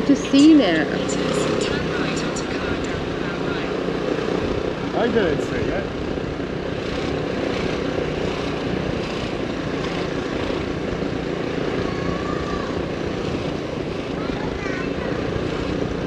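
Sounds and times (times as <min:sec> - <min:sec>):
motorbike engine running: 0:00.0 - 0:16.0
wind noise on microphone: 0:04.3 - 0:16.0.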